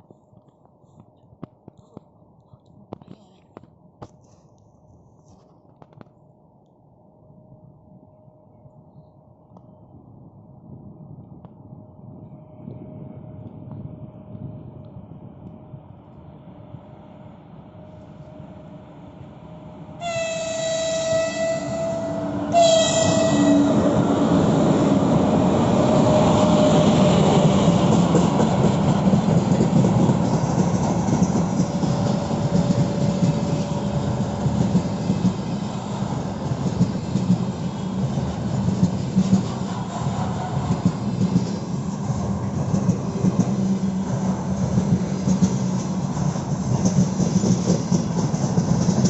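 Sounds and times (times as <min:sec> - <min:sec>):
freight train rumbling past: 0:10.3 - 0:49.0
locomotive horn blasts: 0:20.0 - 0:23.9.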